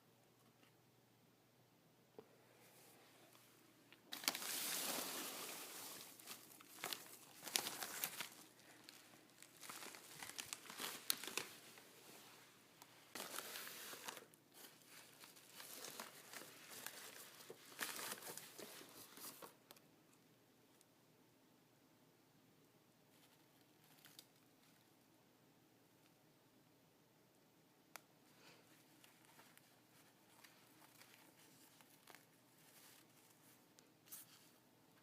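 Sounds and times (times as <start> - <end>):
packaging crinkling and rustling: 4.1 - 19.8, 28.7 - 34.4.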